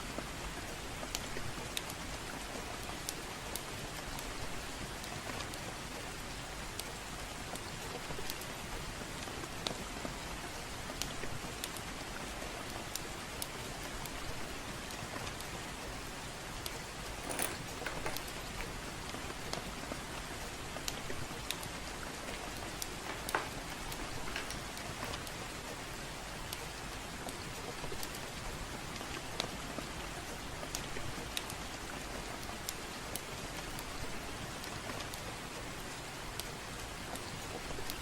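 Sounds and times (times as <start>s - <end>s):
gentle rain: 0.0s - 38.0s
fireplace crackling: 0.2s - 38.0s.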